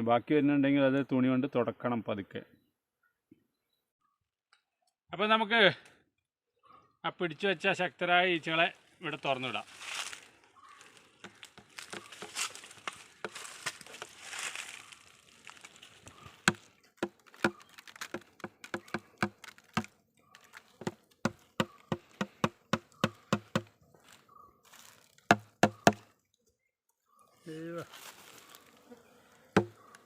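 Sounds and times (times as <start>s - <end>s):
sharp taps: 16.4s - 19.9s, 25.3s - 26.0s, 29.6s - 29.8s
bees buzzing: 28.6s - 30.0s.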